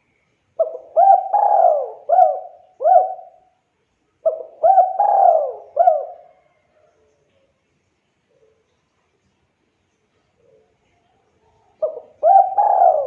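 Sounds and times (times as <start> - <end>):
dove cooing: 0.6 - 3.5, 4.2 - 6.6, 11.7 - 13.0.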